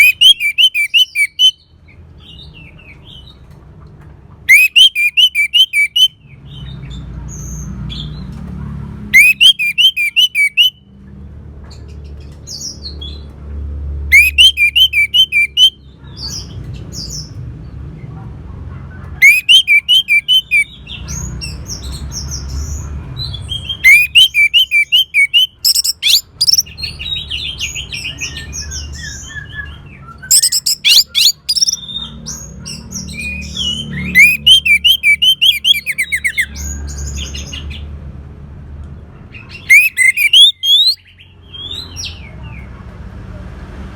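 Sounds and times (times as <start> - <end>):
soft bird twittering: 0.0 - 3.3, 4.5 - 6.7, 14.1 - 17.3, 19.2 - 37.6, 39.3 - 42.4
thrush singing: 23.8 - 26.7, 30.3 - 31.9, 39.7 - 41.0.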